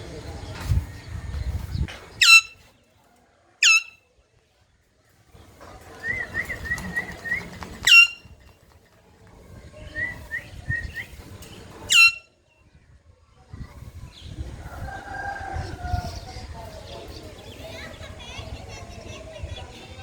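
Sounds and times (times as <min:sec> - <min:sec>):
parrot chirping: 0:02.2 - 0:02.6, 0:03.6 - 0:04.0, 0:07.8 - 0:08.2, 0:11.9 - 0:12.2
parrot screeching: 0:02.2 - 0:02.6, 0:03.6 - 0:04.0, 0:07.8 - 0:08.2, 0:11.9 - 0:12.2.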